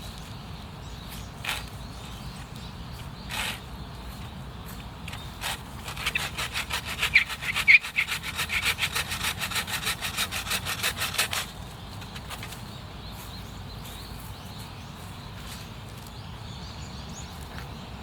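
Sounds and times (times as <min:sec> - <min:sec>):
hand saw cutting wood: 0:03.3 - 0:03.6, 0:05.1 - 0:12.5.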